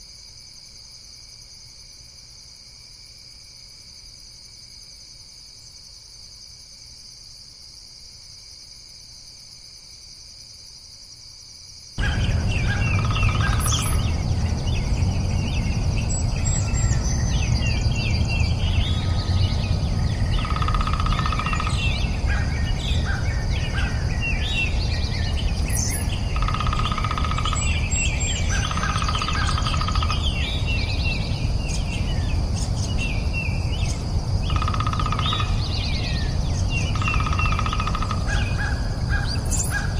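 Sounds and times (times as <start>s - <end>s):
insect drone: 0.0s - 39.9s
birds chirping and calling: 12.0s - 39.9s.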